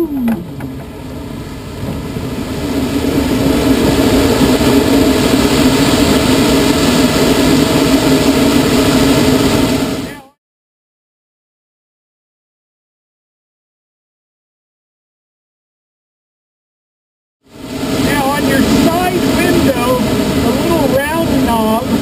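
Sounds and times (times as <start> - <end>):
rushing airflow around cockpit: 0.0 - 10.3, 17.5 - 22.0
steady low hum: 0.0 - 10.4, 17.5 - 22.0.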